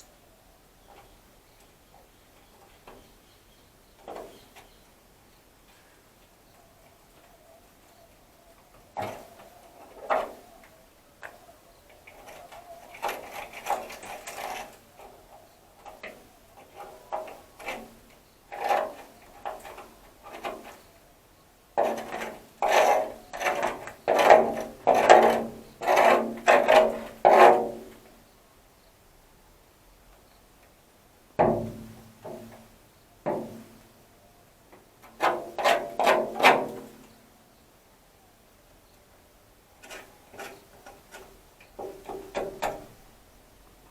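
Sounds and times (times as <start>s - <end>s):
hand tool rasping on sheet metal: 21.8s - 27.8s, 35.1s - 36.8s.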